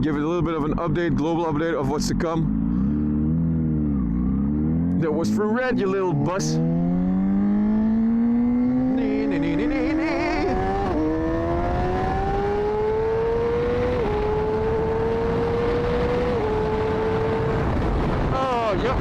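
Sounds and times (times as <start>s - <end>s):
motorcycle engine accelerating: 0.0s - 19.0s
wind rushing over microphone: 6.6s - 19.0s.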